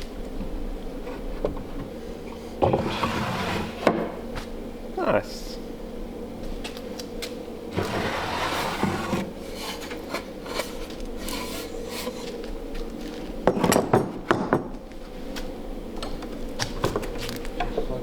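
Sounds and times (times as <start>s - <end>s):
wooden drawer sliding: 2.6s - 4.2s, 7.7s - 12.2s.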